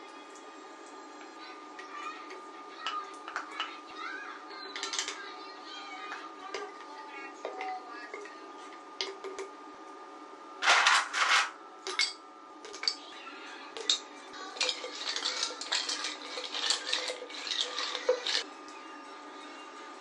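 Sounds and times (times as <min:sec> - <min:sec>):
rustling scraping bursts: 0:10.6 - 0:11.6
dishes and utensils clinking: 0:10.6 - 0:13.0, 0:13.8 - 0:18.4.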